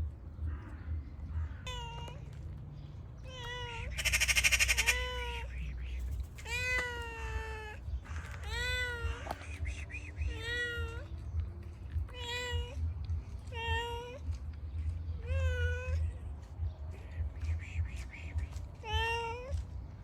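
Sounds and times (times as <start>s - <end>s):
cat meowing: 1.4s - 2.4s, 3.2s - 5.6s, 6.4s - 11.4s, 12.0s - 12.9s, 13.5s - 14.3s, 15.2s - 16.2s, 18.8s - 19.6s.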